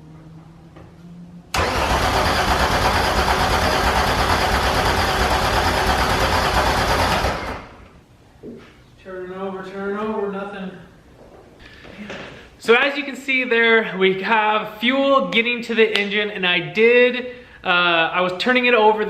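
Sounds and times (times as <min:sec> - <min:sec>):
engine cranking by starter: 0:01.5 - 0:07.9.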